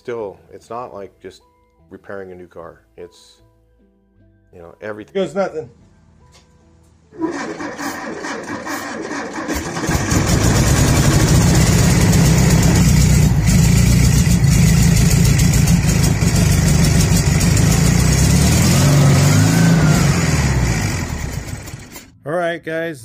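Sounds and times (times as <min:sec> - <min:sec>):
car engine cranking and running: 0:07.2 - 0:22.1.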